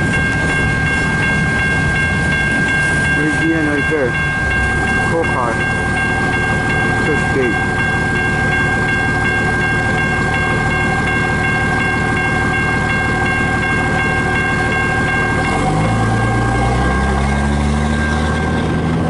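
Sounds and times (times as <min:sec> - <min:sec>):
crossing warning bell: 0:00.0 - 0:19.0
freight train rumbling: 0:00.0 - 0:19.0
vehicle engine revving: 0:14.7 - 0:19.0.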